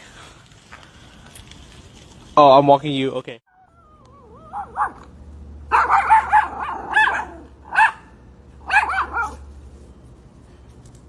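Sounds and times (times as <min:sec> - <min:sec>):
dog barking in high yips: 0:03.6 - 0:05.0, 0:05.7 - 0:09.5.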